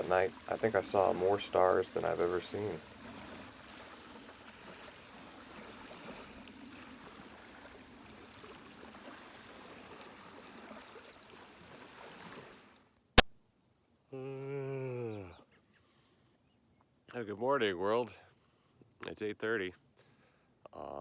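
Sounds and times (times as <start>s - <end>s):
faint high ticking: 0.0s - 12.6s
water lapping: 0.0s - 12.8s.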